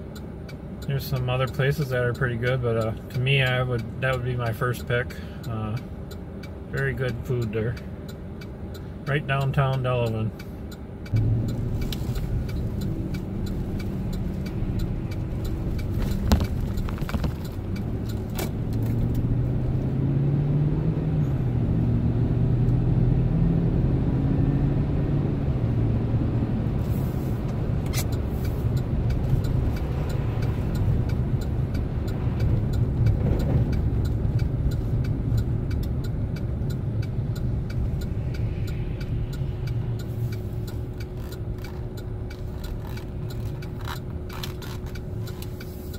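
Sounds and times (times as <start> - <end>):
engine and road rumble: 0.0 - 45.9
small clicks: 38.7 - 45.8.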